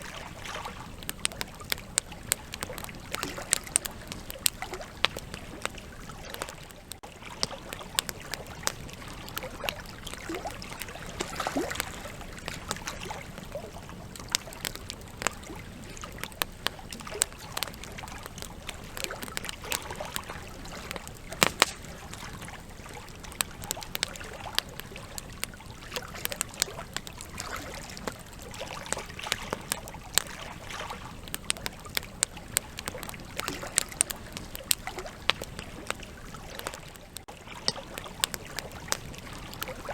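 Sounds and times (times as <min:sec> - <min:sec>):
campfire crackling and popping: 0:00.0 - 0:39.9
soft rush of flame: 0:10.8 - 0:25.2.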